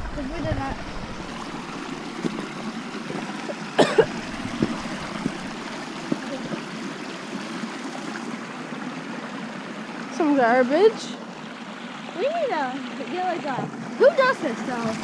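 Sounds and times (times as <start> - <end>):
stream trickling: 0.0 - 15.0
sharp knocks: 3.9 - 6.6.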